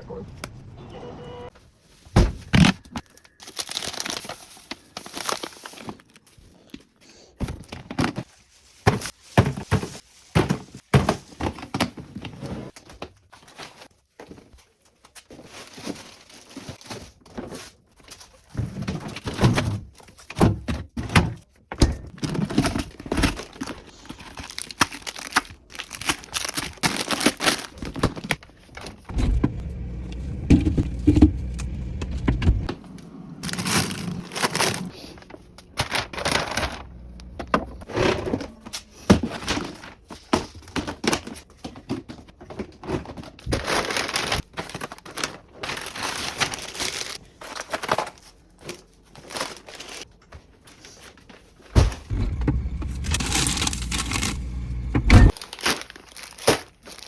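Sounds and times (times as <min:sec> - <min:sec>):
bags and wrappers crinkling: 0:01.8 - 0:07.0, 0:22.1 - 0:29.1, 0:33.4 - 0:37.4, 0:38.9 - 0:57.0
packages thunking when set down: 0:02.0 - 0:03.1, 0:18.6 - 0:48.2, 0:51.6 - 0:55.6.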